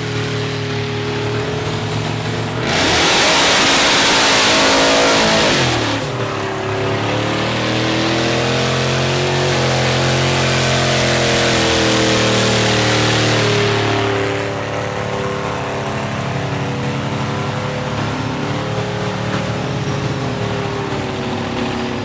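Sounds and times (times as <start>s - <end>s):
loud rush of noise: 0.0s - 8.6s
truck engine revving: 0.0s - 22.0s.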